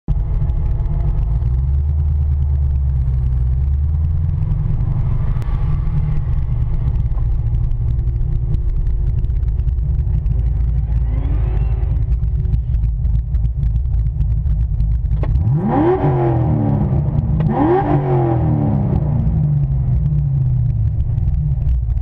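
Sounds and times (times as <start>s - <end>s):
car engine idling deeply: 0.1s - 22.0s.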